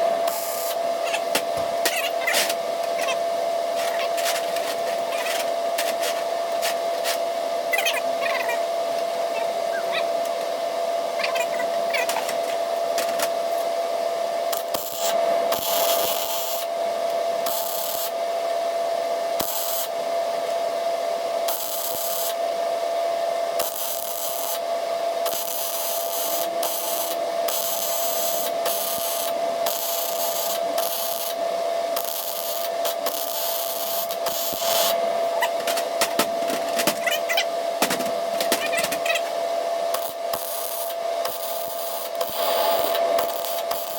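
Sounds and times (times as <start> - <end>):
steady hum: 0.0 - 25.2, 26.0 - 43.9
welding arc hissing and crackling: 0.1 - 2.6, 14.4 - 16.8, 17.4 - 18.2, 19.3 - 20.0, 21.4 - 22.4, 23.5 - 37.4, 38.2 - 43.9.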